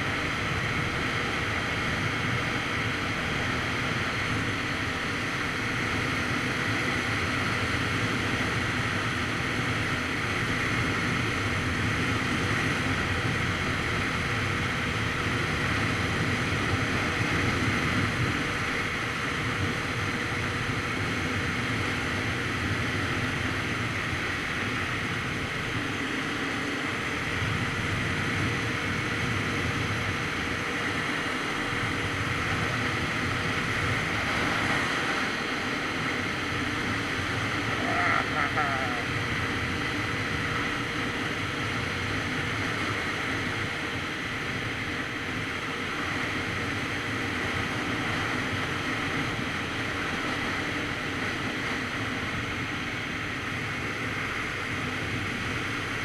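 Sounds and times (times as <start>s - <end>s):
motorcycle engine running: 35.9s - 41.9s.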